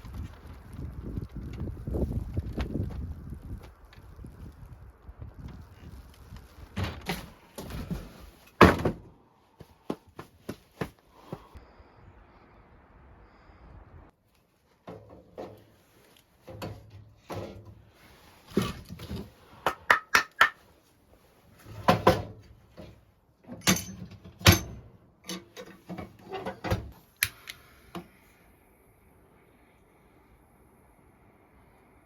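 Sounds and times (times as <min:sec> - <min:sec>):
objects knocking and clattering: 0:21.8 - 0:27.0.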